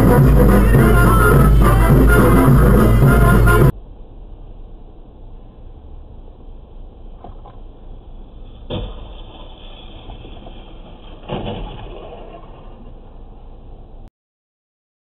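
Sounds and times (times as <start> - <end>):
car road and engine noise: 0.0 - 14.1
vehicle crash: 7.1 - 13.6.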